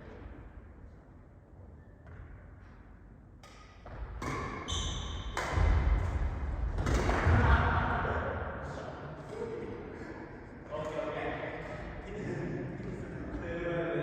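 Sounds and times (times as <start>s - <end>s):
racket hitting shuttlecock: 3.4s - 7.4s
shoe squeak on court floor: 4.6s - 5.2s.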